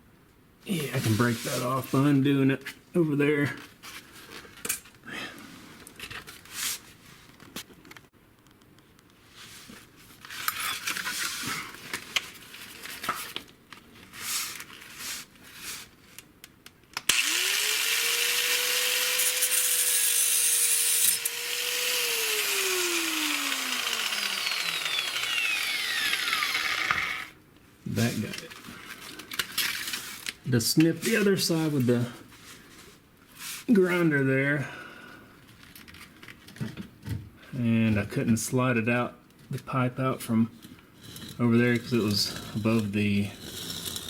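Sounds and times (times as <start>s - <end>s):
angle grinder cutting steel pipe: 17.1s - 27.4s.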